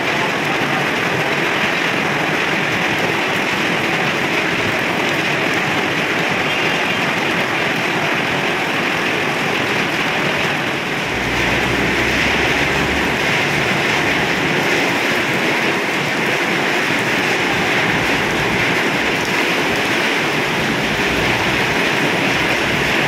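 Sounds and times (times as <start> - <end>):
heavy rain hissing: 0.0 - 23.0
low rumble: 11.0 - 15.2.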